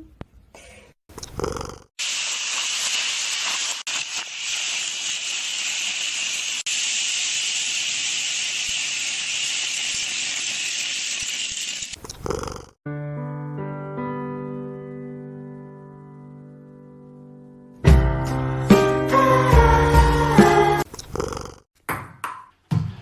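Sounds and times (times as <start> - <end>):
steady hiss: 2.0 - 12.4.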